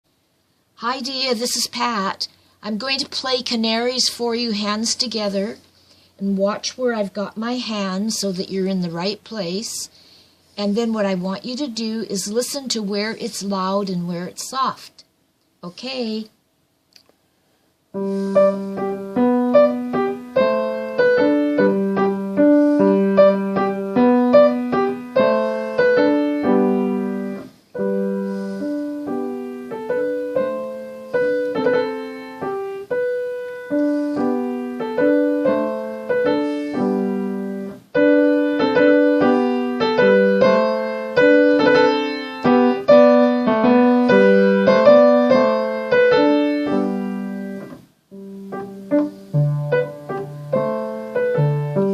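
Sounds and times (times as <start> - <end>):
piano tune: 18.0 - 51.9.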